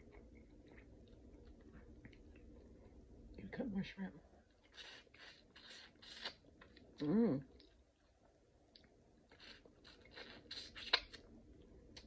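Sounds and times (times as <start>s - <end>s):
person chewing shrimp: 0.0s - 2.6s, 4.5s - 7.0s, 8.6s - 12.0s.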